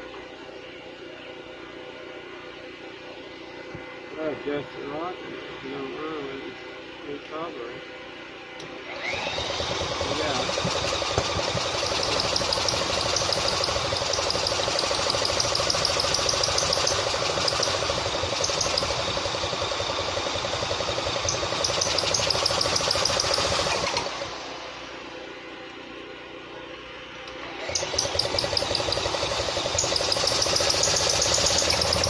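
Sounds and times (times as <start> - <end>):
old tractor engine running: 8.9 - 26.2, 27.3 - 32.0.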